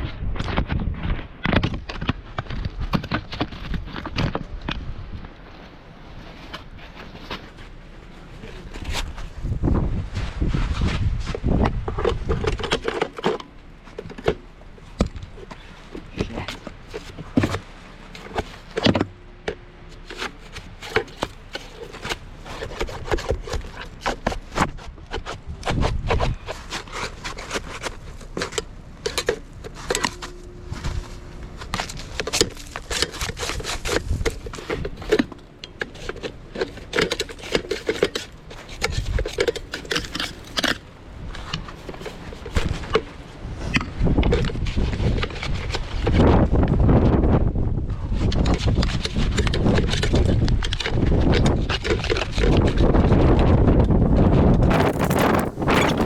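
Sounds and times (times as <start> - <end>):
ice knocked and scraped: 10.4 - 46.5, 54.5 - 56.0.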